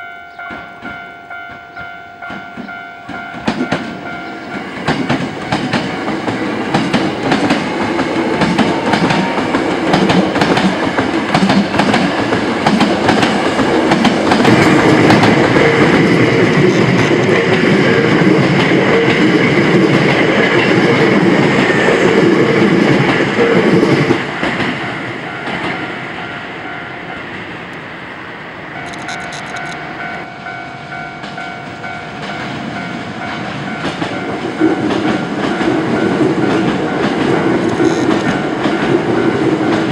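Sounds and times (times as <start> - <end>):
train wheels clacking over joints: 2.3 - 17.8, 18.4 - 25.9, 31.2 - 39.9.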